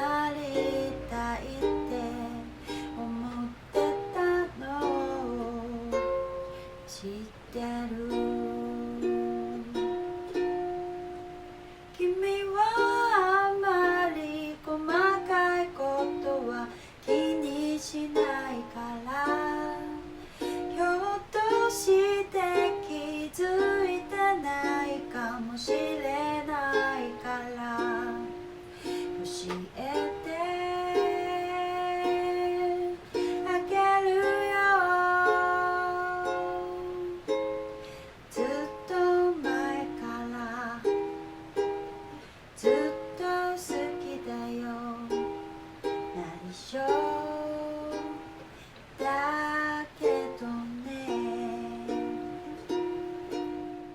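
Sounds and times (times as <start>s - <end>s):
person singing gently: 0.0s - 37.5s, 38.3s - 41.7s, 42.6s - 53.9s
ukulele strummed and plucked: 0.0s - 53.9s.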